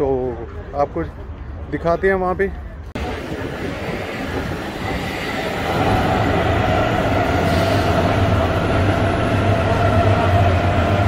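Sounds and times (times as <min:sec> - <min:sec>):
train rumble and motor hum: 0:02.5 - 0:11.0.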